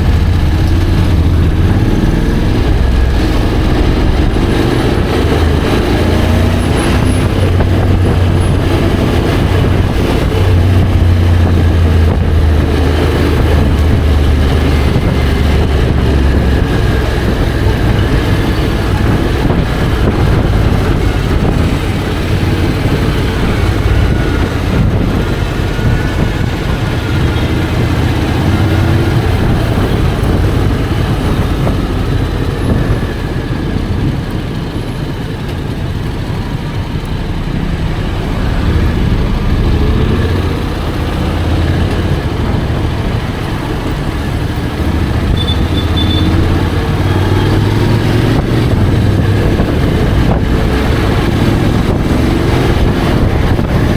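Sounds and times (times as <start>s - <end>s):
motorcycle engine running: 0.0s - 53.9s
road and air noise: 0.0s - 53.9s.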